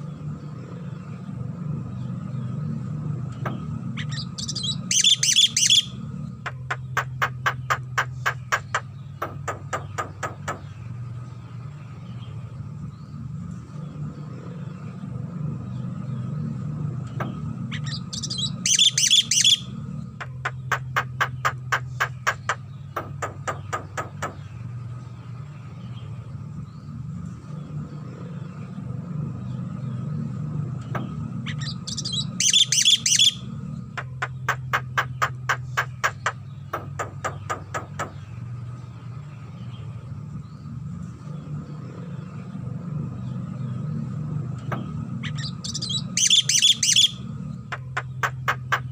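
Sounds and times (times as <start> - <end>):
bird rapid clicking notes: 3.4 - 10.7, 20.2 - 24.4, 34.0 - 38.2, 47.7 - 48.9.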